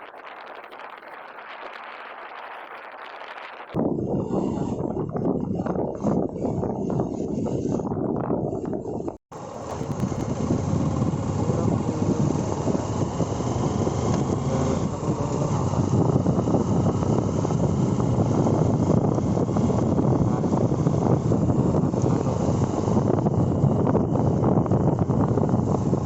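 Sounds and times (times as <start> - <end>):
motorcycle engine and road noise: 0.0 - 26.0
wind rush on microphone: 0.0 - 26.0.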